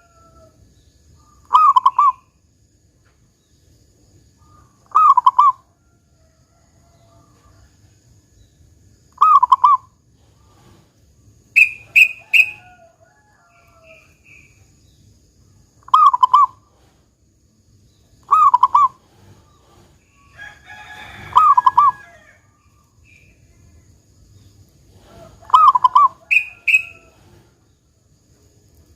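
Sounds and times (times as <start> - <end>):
dove cooing: 4.9 - 5.6, 18.3 - 19.9, 21.2 - 22.0, 25.0 - 27.5
birds chirping: 11.4 - 12.7, 25.5 - 27.7
sharp high bird notes: 11.6 - 12.6.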